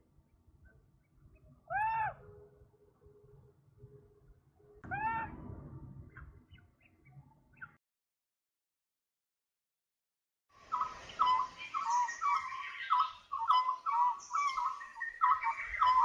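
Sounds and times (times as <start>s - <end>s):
faint low background noise: 0.0s - 7.7s
bird calls: 10.6s - 16.0s.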